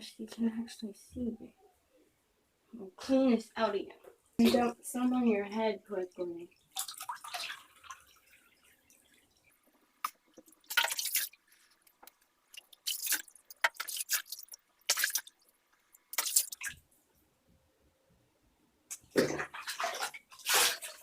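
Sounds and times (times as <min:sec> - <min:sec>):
water splashing in bathtub: 0:06.5 - 0:16.9, 0:18.9 - 0:21.0.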